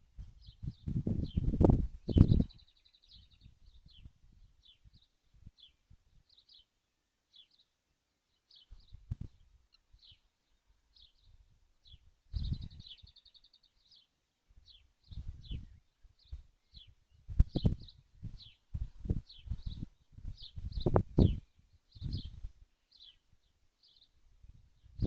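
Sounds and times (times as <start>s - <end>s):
birds chirping: 0.4s - 24.2s.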